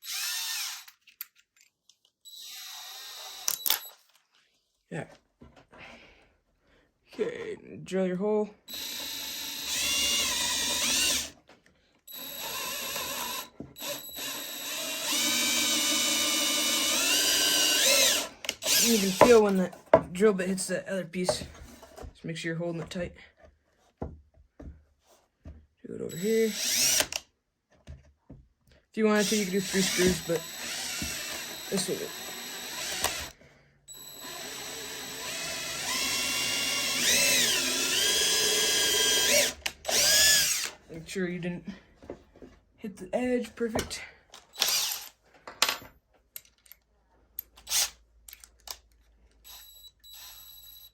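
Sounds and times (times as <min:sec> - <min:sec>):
power drill boring into wood: 0:00.0 - 0:01.0, 0:02.3 - 0:03.8, 0:08.7 - 0:11.4, 0:12.1 - 0:19.6, 0:26.1 - 0:27.2, 0:29.1 - 0:40.8, 0:44.5 - 0:45.1, 0:47.6 - 0:48.0, 0:49.5 - 0:50.9.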